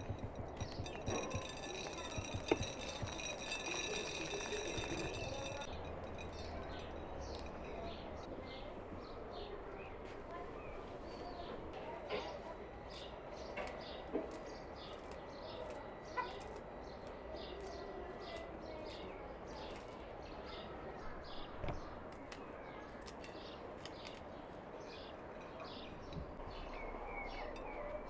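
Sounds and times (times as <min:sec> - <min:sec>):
glassware and plate clicking: 0:00.0 - 0:08.3
small birds chirping: 0:00.0 - 0:28.0.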